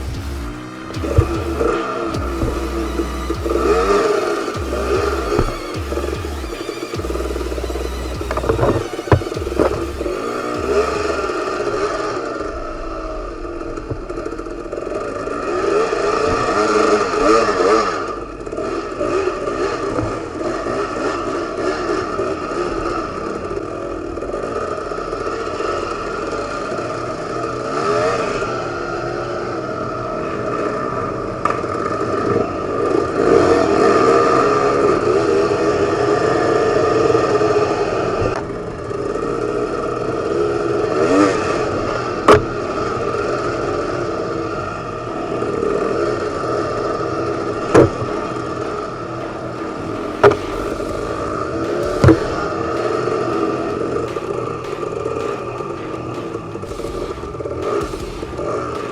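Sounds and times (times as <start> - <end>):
sharp knock: 0.0 - 11.7, 47.7 - 58.9
dirt bike engine revving: 0.0 - 12.4, 47.8 - 58.9.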